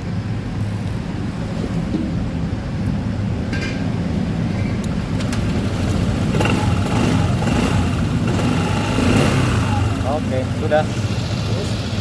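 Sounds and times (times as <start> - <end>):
scooter engine idling: 5.1 - 12.0.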